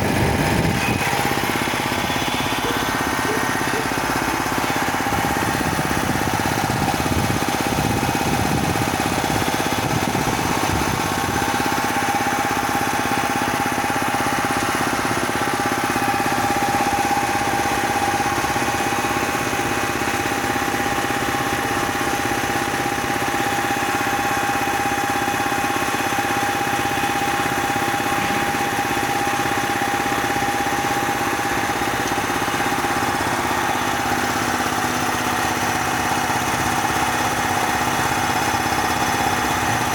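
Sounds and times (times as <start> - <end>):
high-pressure compressor whining: 0.0 - 39.9.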